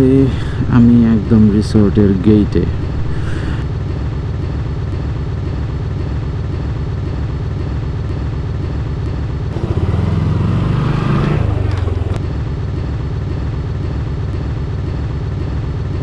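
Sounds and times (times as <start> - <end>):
motorcycle engine at low revs: 5.2 - 16.0.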